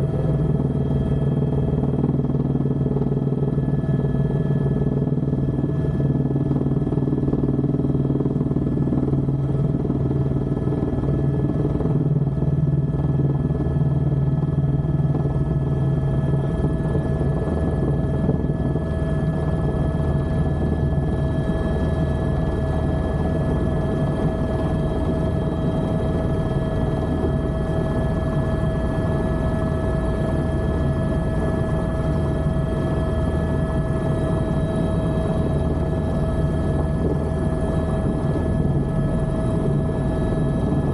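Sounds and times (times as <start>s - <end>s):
helicopter rotor and engine drone: 0.0s - 40.9s.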